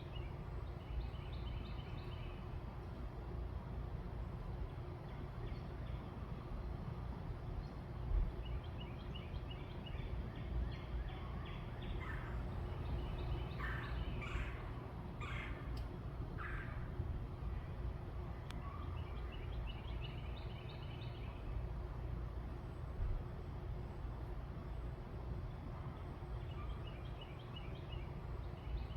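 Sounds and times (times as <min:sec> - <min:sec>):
birds chirping: 0:08.4 - 0:16.9
harsh bird calls: 0:11.2 - 0:15.8.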